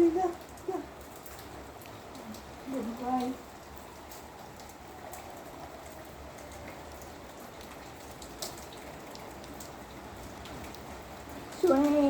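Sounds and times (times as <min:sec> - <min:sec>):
rain hiss: 0:00.0 - 0:12.0
drops ticking on a surface: 0:06.4 - 0:12.0.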